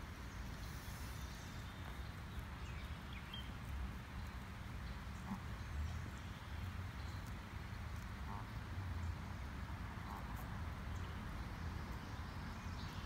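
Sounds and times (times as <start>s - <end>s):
goslings peeping: 4.3s - 5.6s, 7.2s - 8.5s.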